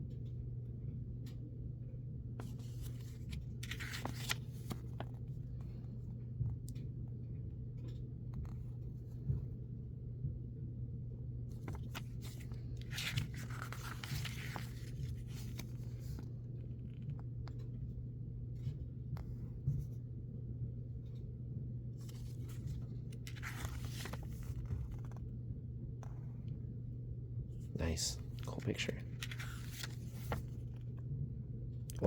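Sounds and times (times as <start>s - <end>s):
low hum: 0.0s - 32.0s
booklet pages rustling: 2.4s - 6.0s, 11.5s - 17.8s, 22.0s - 25.3s, 27.9s - 31.0s
paper clicks and handling: 2.4s - 6.8s, 11.5s - 17.8s, 22.0s - 25.2s, 27.9s - 31.0s.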